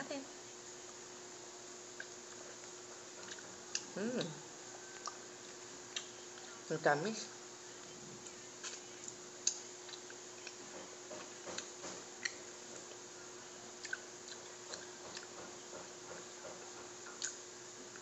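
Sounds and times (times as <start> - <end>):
faint steady hum: 0.0 - 18.0
chewing and sucking fruit: 1.9 - 6.6, 7.8 - 13.1, 13.7 - 15.4, 16.2 - 18.0
mouth clicks and smacks: 2.0 - 4.4, 13.8 - 15.4, 17.0 - 17.4.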